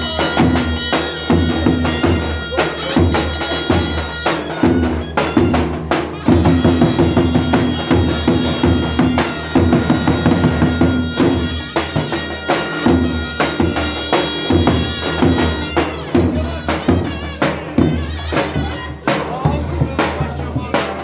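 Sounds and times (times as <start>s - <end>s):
driving drumbeat: 0.0s - 21.0s
wind instrument melody: 0.0s - 21.0s.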